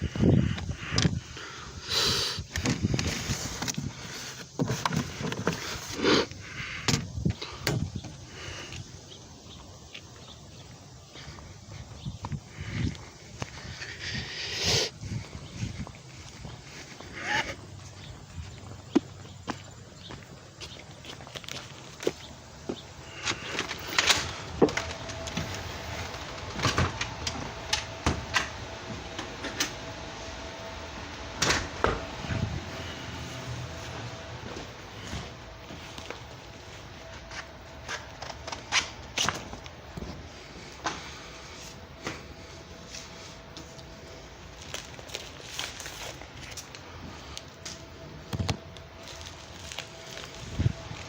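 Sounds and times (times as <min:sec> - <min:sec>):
faint steady hum: 0:00.0 - 0:51.0
packaging rustling: 0:23.0 - 0:28.0, 0:43.0 - 0:51.0.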